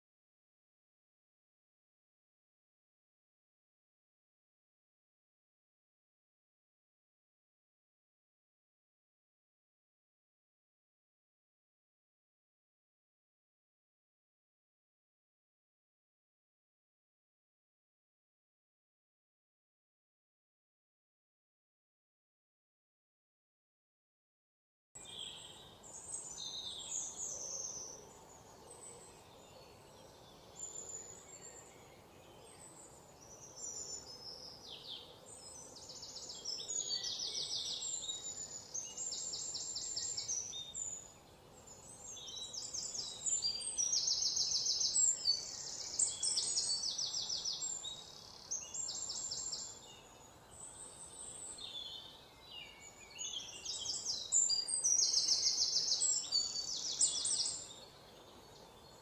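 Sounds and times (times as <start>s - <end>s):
faint forest background noise: 25.0s - 59.0s
small birds chirping and trilling: 25.0s - 59.0s.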